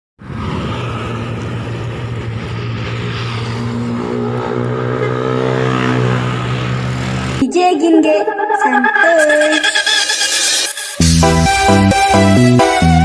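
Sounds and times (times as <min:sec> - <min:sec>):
steady pitched tone: 0:07.4 - 0:12.2.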